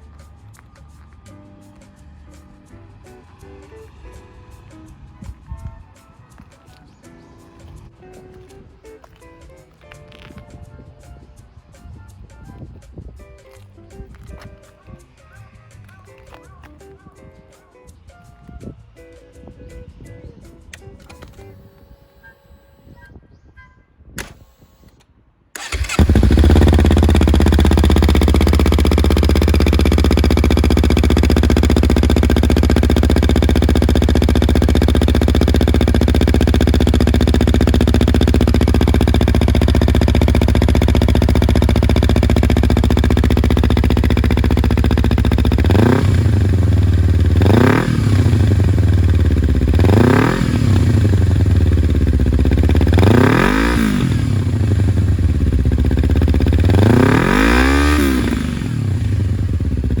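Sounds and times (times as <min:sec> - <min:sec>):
motorcycle engine idling and revving: 0:25.6 - 1:00.0.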